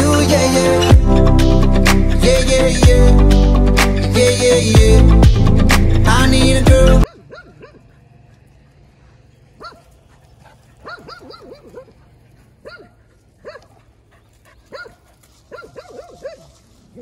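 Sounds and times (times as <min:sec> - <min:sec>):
dog yipping: 0:07.0 - 0:07.8, 0:09.6 - 0:09.8, 0:10.8 - 0:11.9, 0:12.6 - 0:13.7, 0:14.7 - 0:16.5.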